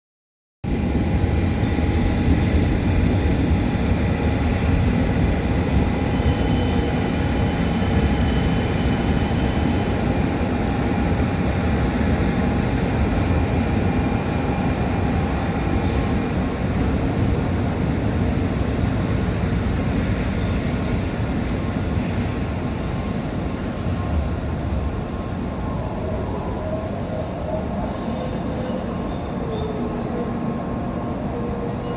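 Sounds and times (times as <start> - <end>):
train brake squeal: 5.9 - 10.0, 19.4 - 31.9
train whining tones: 19.3 - 31.9.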